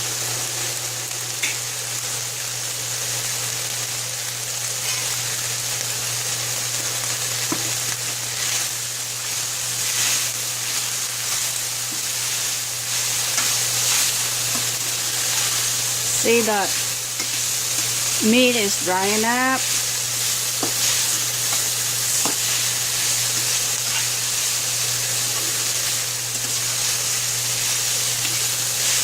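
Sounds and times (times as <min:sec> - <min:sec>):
meat sizzling in a frying pan: 0:00.0 - 0:29.0.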